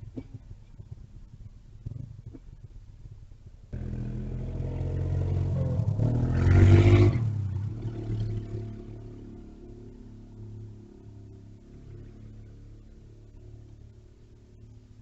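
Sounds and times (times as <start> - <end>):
vehicle engine passing by: 3.8 - 14.8.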